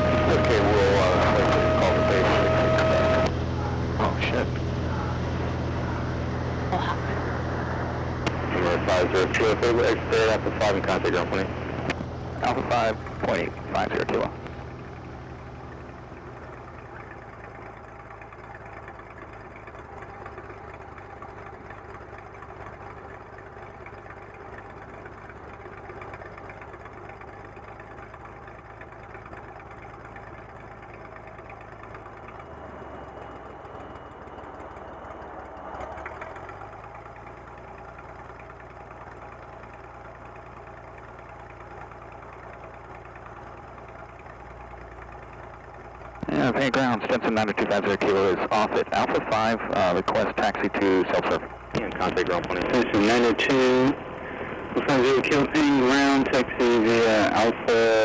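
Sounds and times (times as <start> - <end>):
aircraft piston engine idling: 0.0 - 15.9, 44.8 - 58.0.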